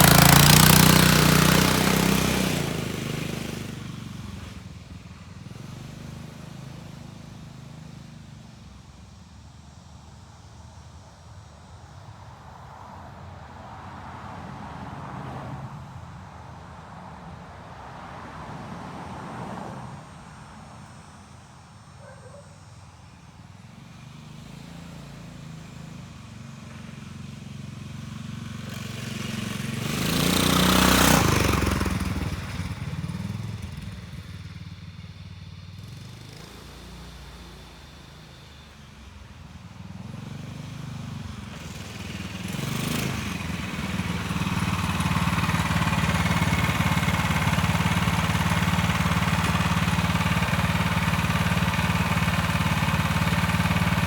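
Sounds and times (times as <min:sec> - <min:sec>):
dirt bike engine revving: 0:00.0 - 0:04.7, 0:23.7 - 0:34.6, 0:35.7 - 0:39.1, 0:39.7 - 0:54.0.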